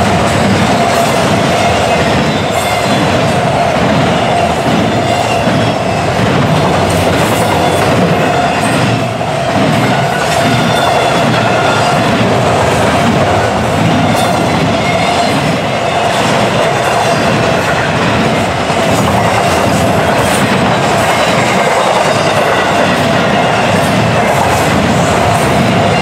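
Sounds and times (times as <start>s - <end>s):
clicks of train wheels: 0.0s - 26.0s
freight train wheels rumbling on rail: 0.0s - 26.0s.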